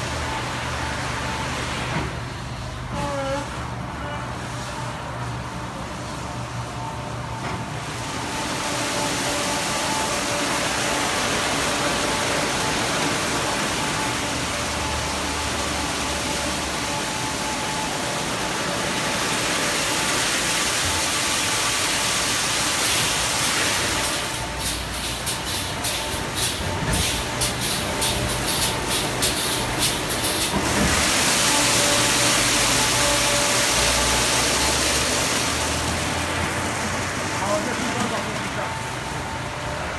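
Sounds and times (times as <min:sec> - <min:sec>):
spraying water: 0:07.8 - 0:38.6.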